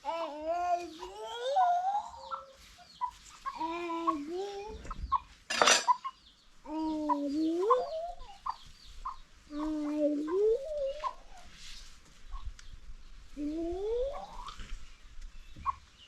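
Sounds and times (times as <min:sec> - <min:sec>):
chickens squawking: 0:00.8 - 0:11.6, 0:13.9 - 0:14.7, 0:15.5 - 0:16.0.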